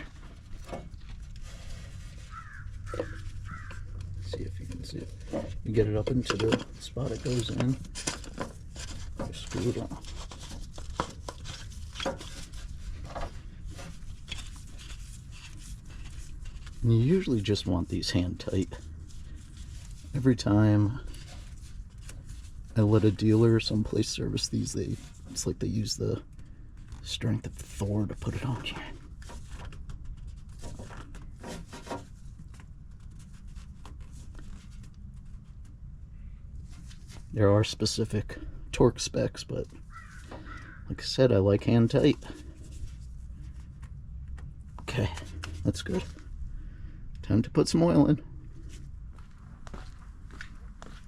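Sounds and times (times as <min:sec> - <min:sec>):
cap being threaded on by hand: 0:00.0 - 0:17.5
low steady hum: 0:00.0 - 0:39.9, 0:40.9 - 0:51.0.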